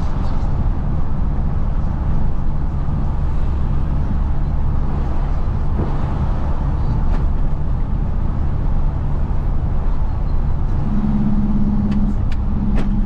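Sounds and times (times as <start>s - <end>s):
road noise: 0.0s - 13.0s
steady low hum: 0.0s - 13.0s
truck diesel engine running: 0.0s - 13.0s.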